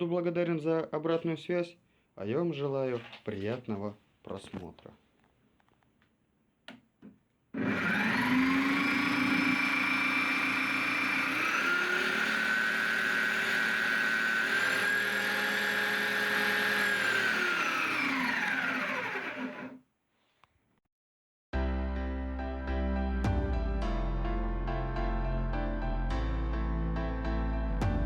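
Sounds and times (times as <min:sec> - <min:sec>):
drill motor whining: 0:07.6 - 0:19.8.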